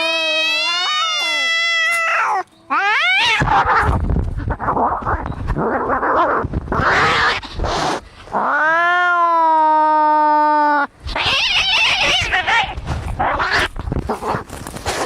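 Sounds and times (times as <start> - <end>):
cat yowling: 0.0 - 4.0, 8.4 - 13.7
cats hissing and growling: 0.0 - 15.0.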